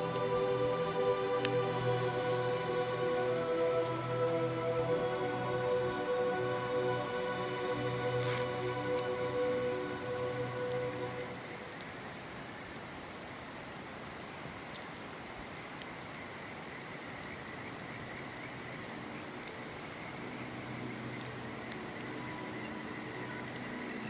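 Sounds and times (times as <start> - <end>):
insects trilling: 0.0 - 11.7
river water rushing: 0.0 - 14.5
campfire crackling and popping: 0.0 - 24.0.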